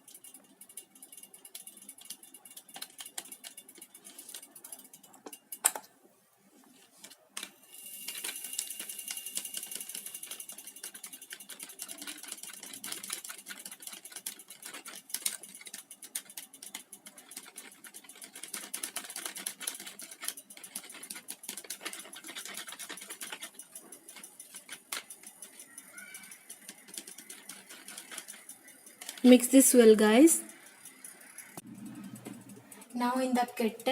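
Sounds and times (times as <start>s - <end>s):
eggs beaten in a bowl: 7.8s - 33.9s.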